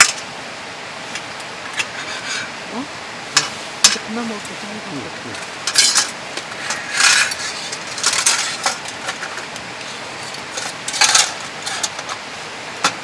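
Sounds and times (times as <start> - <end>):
steady hiss: 0.0 - 13.0
cutlery clinking against dishes: 5.3 - 12.2.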